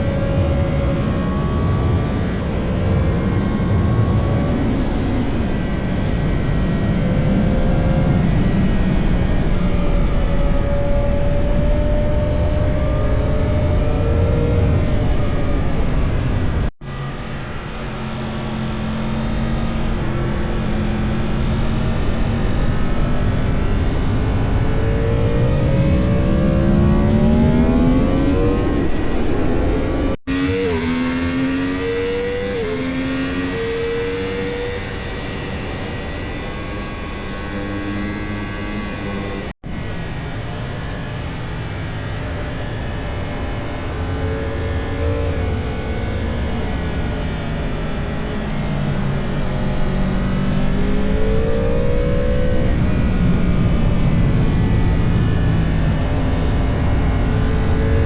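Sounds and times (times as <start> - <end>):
motorcycle engine shifting gears: 16.9 - 39.5.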